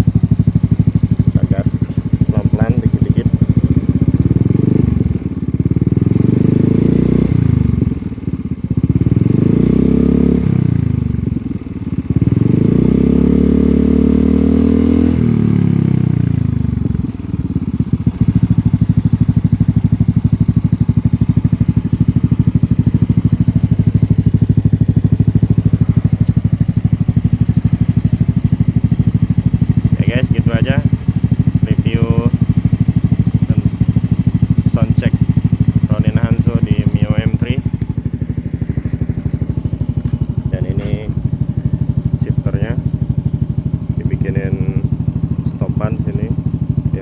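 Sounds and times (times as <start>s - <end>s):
scooter engine revving and idling: 0.0s - 47.0s.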